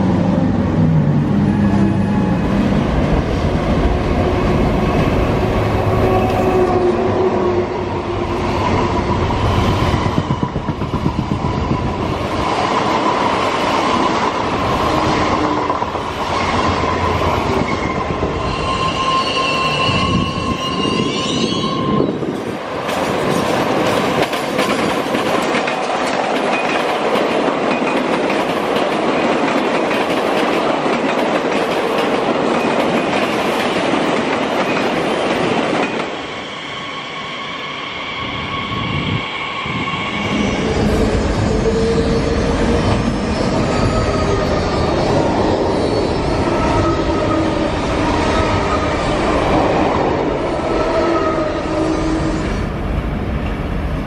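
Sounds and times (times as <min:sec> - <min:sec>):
train wheels rumbling on rails: 0:00.0 - 0:54.0
wheels screeching on rails: 0:00.4 - 0:52.9
clickety-clack over rail joints: 0:22.3 - 0:36.2.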